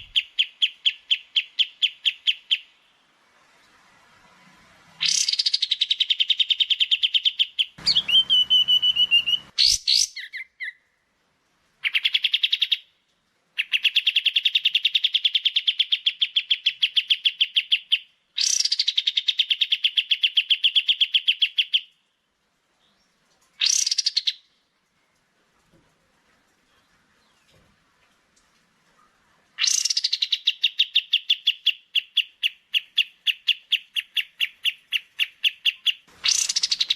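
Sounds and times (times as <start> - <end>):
songbirds chattering: 5.0 - 10.7, 29.6 - 36.9
held whistled note: 7.8 - 9.5.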